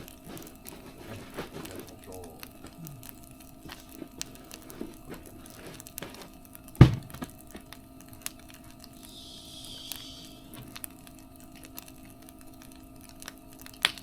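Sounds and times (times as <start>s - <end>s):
campfire crackling: 0.0s - 14.0s
sharp pops of fire: 0.0s - 14.0s
loud thump: 6.8s - 7.3s
brief hiss: 9.1s - 10.6s.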